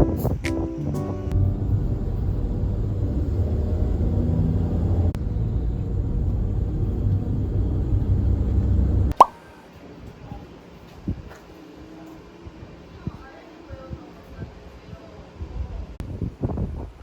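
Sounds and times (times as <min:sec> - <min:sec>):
moving vehicle rumble: 0:01.3 - 0:09.2.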